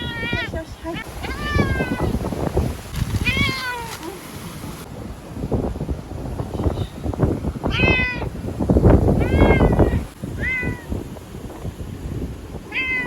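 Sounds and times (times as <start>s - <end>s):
cat yowling: 0.0s - 0.5s, 1.2s - 2.2s, 3.2s - 4.0s, 7.7s - 8.3s, 9.2s - 10.9s, 12.7s - 13.0s.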